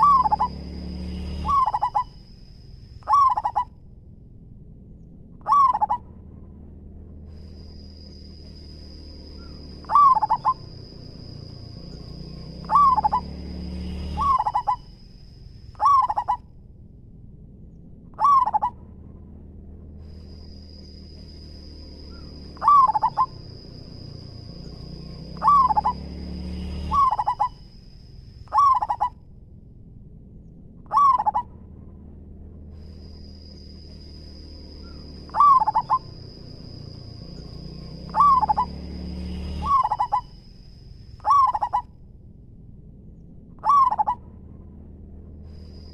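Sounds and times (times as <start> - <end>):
dove cooing: 0.0 - 0.6, 1.3 - 2.2, 3.0 - 3.7, 5.4 - 6.0, 9.4 - 11.3, 12.6 - 13.4, 14.0 - 15.0, 15.8 - 16.4, 18.2 - 18.8, 22.1 - 24.4, 25.3 - 26.1, 26.8 - 27.6, 28.5 - 29.2, 30.9 - 31.5, 34.8 - 36.8, 38.0 - 38.8, 39.6 - 40.4, 41.2 - 41.9, 43.6 - 44.2.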